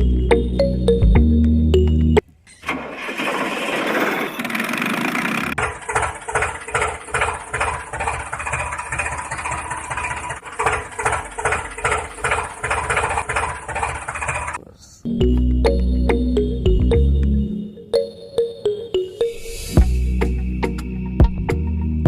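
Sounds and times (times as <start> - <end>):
engine cranking and idling: 2.5 - 14.7.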